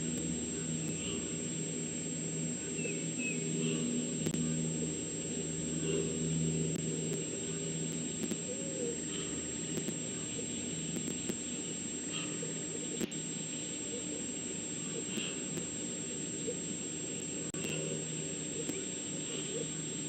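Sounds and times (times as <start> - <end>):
low engine-like drone: 0.0 - 20.0
faint bird chirps: 2.6 - 4.6.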